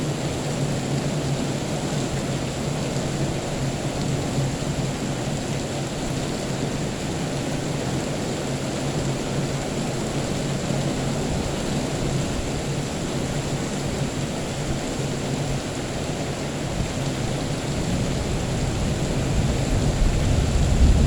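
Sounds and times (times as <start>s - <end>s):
steady rain: 0.0s - 21.0s
low rumble of thunder: 16.7s - 21.0s.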